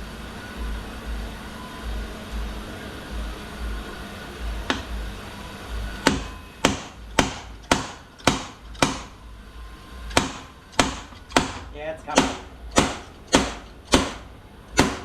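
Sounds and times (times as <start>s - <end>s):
ringing metal hammer blows: 6.0s - 9.3s, 10.0s - 15.0s.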